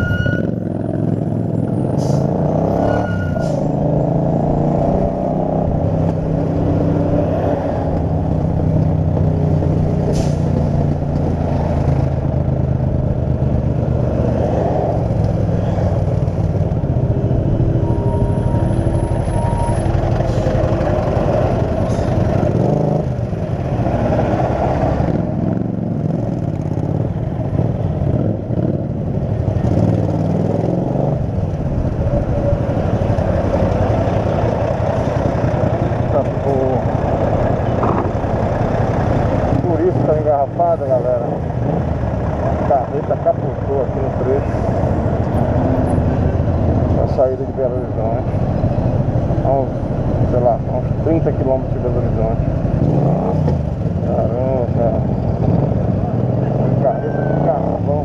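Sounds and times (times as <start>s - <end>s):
heavy traffic: 0.0s - 58.0s.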